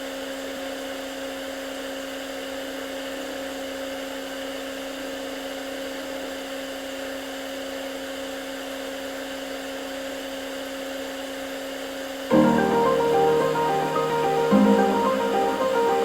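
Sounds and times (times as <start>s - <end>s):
constant hiss: 12.3s - 16.0s.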